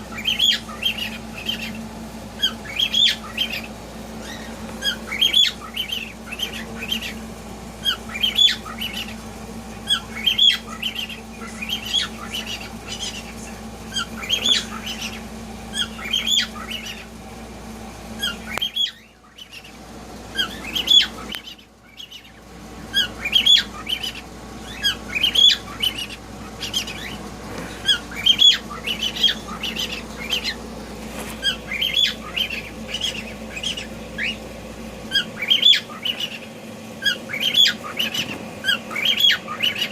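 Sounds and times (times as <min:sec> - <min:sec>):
cockatiels squawking: 0:00.0 - 0:17.3, 0:18.0 - 0:39.9.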